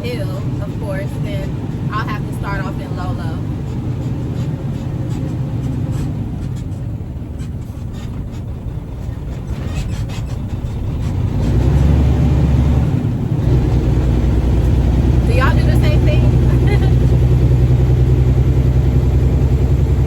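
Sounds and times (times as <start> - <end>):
dump truck diesel engine accelerating: 0.0 - 20.0.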